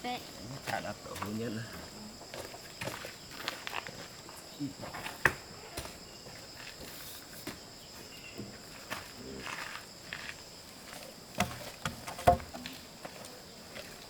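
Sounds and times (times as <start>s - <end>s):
insect chorus: 0.0s - 14.0s
sharp knocks and clicks: 11.4s - 12.6s.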